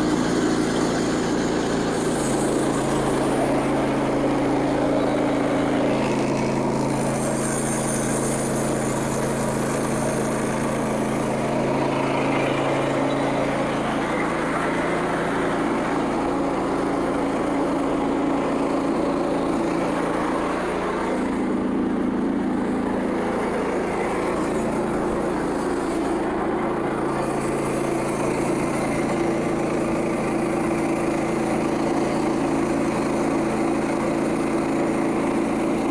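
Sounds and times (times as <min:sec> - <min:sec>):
sawmill gas engine running: 0:00.0 - 0:35.9
band blade cutting log: 0:05.9 - 0:11.7.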